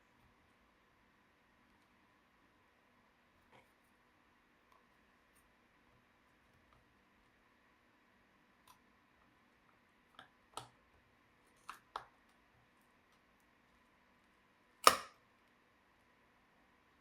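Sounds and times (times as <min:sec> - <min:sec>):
laptop parts clicking: 0:14.8 - 0:15.2.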